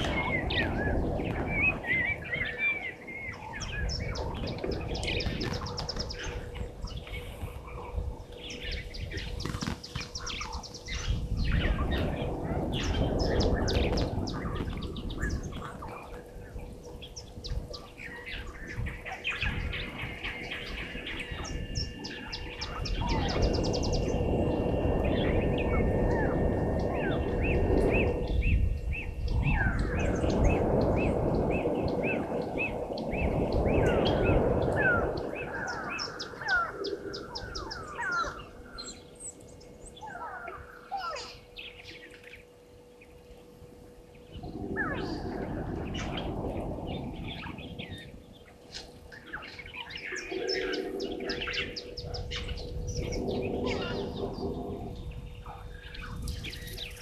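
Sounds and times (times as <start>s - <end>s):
birds chirping and whistling: 0.0s - 57.0s
low rushing noise: 10.9s - 40.8s, 41.6s - 57.0s.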